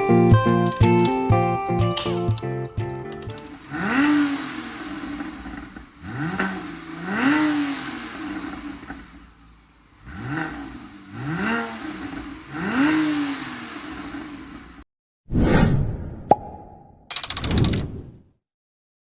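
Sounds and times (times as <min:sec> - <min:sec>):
car engine revving: 0:03.2 - 0:14.8.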